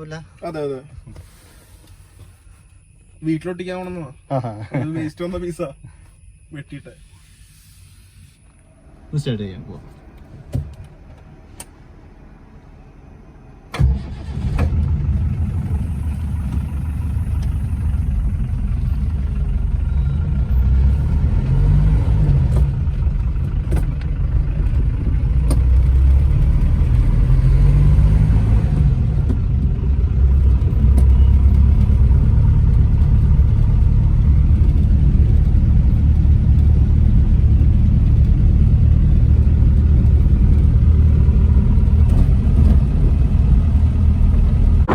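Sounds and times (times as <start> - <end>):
engine throttle blips: 7.3 - 44.9
diesel engine cranking and starting: 8.7 - 44.9
diesel engine idling: 11.0 - 28.1, 28.8 - 44.9.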